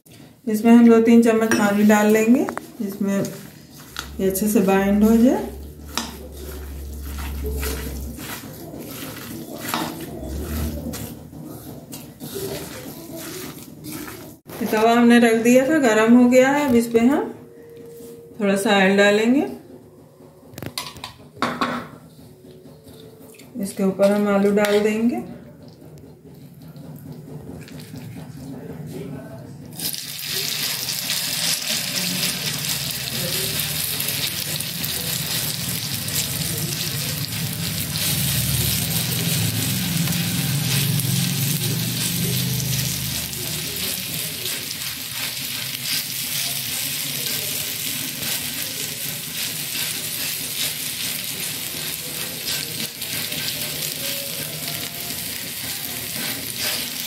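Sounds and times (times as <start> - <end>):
batter sizzling in hot oil: 1.5 - 14.8, 29.8 - 57.0.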